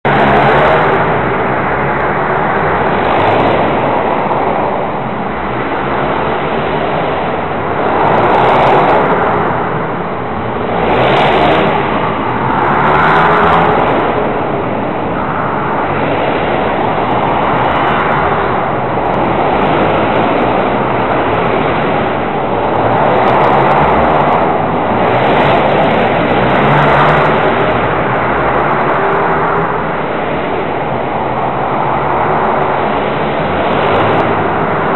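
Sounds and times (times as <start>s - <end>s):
pit bike engine revving: 10.6s - 14.4s.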